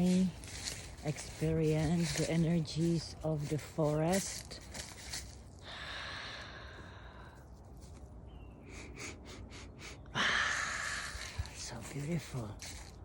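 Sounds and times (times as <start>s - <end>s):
person breathing: 5.6s - 7.5s, 8.7s - 11.5s.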